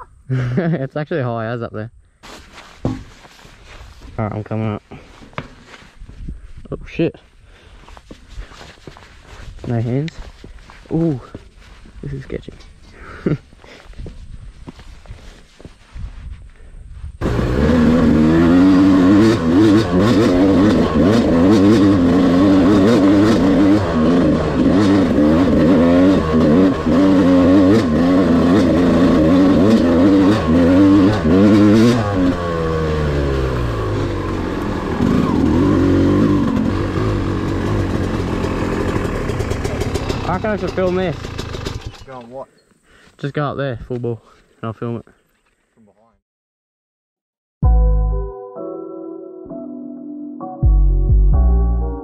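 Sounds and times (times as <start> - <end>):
dirt bike engine revving: 17.2 - 42.1.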